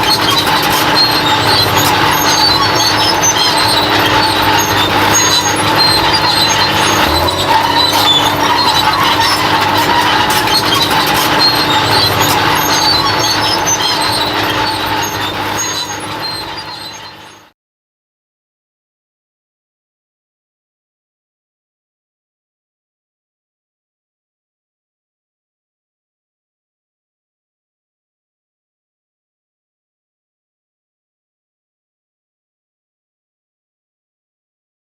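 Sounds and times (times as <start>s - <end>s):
bulldozer diesel engine: 0.0s - 17.5s
steel tracks squeaking: 0.0s - 17.5s.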